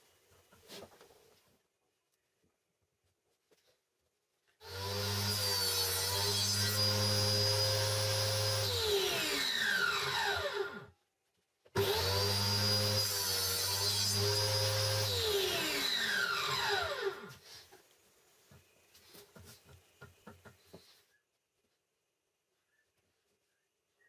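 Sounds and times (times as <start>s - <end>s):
power tool motor whining: 4.6s - 10.9s, 11.8s - 17.4s.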